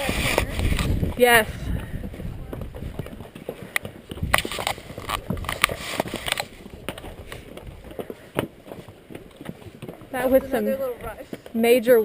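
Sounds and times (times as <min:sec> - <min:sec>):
wind gusting on microphone: 0:00.0 - 0:08.3.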